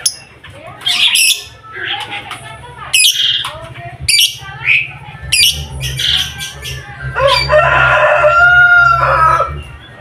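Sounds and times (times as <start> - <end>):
bird squawks and chirps: 0.0 - 2.0, 2.9 - 3.5, 4.1 - 7.5
rooster crowing: 7.1 - 9.6.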